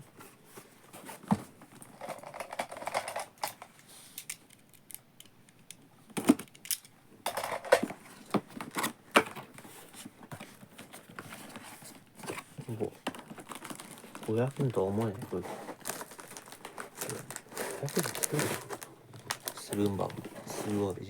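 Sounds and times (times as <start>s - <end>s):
plastic parts clicking and knocking: 1.4s - 9.6s, 12.3s - 20.5s
packaging scraping and rustling: 7.5s - 21.0s.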